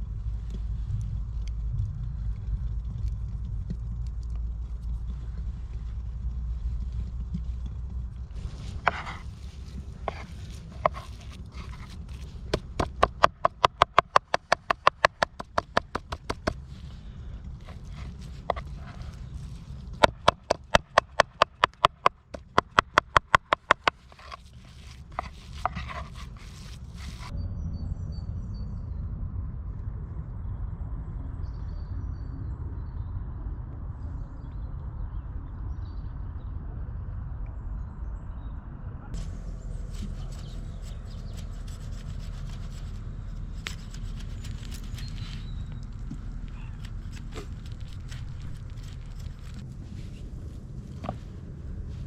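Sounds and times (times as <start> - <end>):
low steady rumble: 0.0 - 52.0
quick knocks: 10.1 - 16.6, 19.9 - 27.3.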